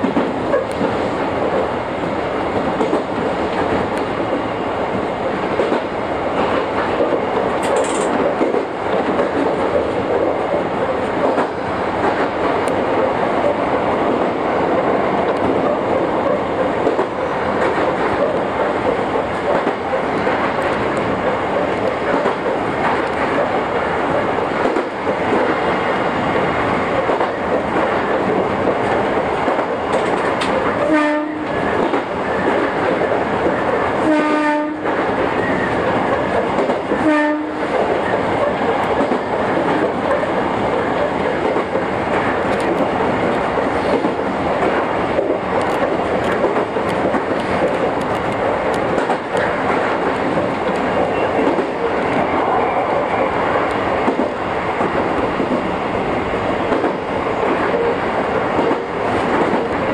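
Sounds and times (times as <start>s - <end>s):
wheels clicking over rail joints: 0.0s - 34.0s, 34.8s - 55.7s, 56.6s - 59.9s
train horn blasts: 30.8s - 31.6s, 34.0s - 34.9s, 37.0s - 37.7s.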